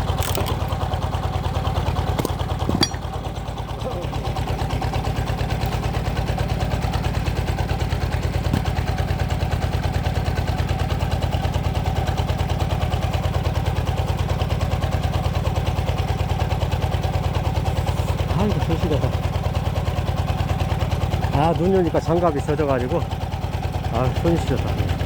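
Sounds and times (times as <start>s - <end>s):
single-cylinder diesel engine running: 0.0s - 25.0s.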